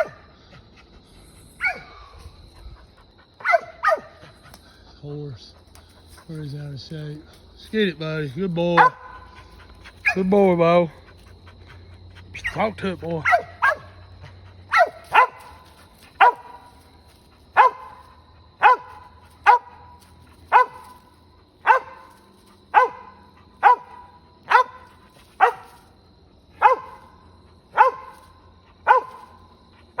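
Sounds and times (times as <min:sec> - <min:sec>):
dog barking: 0:00.0 - 0:00.2, 0:01.6 - 0:02.0, 0:03.4 - 0:04.3, 0:08.8 - 0:10.3, 0:13.2 - 0:14.1, 0:14.7 - 0:16.8, 0:17.5 - 0:21.0, 0:21.6 - 0:25.9, 0:26.5 - 0:30.0.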